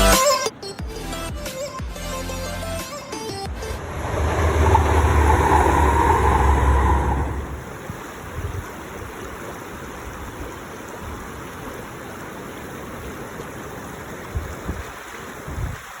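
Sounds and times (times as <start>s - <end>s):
wind: 0.0s - 16.0s
sea surf: 2.8s - 8.8s.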